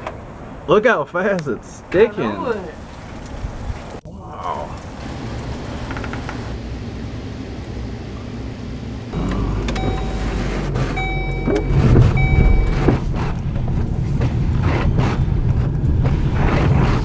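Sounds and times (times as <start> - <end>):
gusty noise: 4.9 - 17.0
car rumbling: 5.0 - 17.0
electronic warning chime beeps: 9.2 - 13.0.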